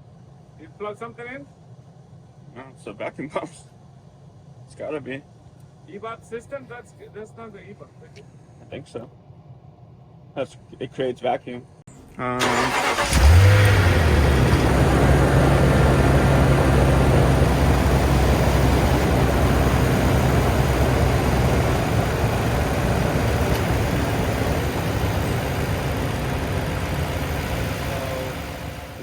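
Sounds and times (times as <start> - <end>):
truck engine idling: 11.9 - 29.0.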